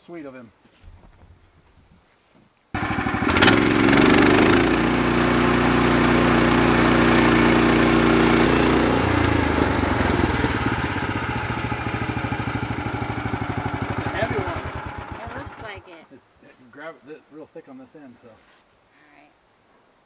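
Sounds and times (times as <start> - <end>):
sawmill gas engine running: 2.8 - 15.8.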